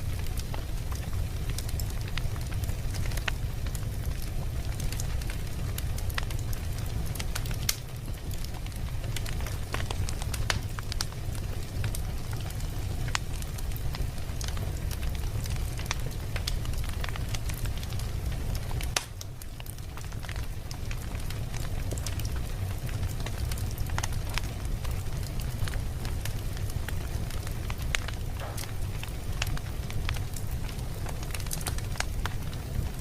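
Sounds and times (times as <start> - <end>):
fire pops and snaps: 0.0 - 33.0
flames rumbling: 0.0 - 33.0
wood fire crackling: 0.0 - 33.0.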